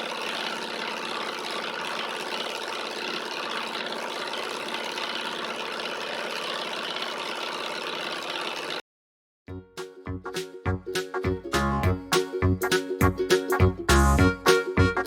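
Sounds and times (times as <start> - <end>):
stirling engine running: 0.0 - 8.8
music: 9.5 - 15.0.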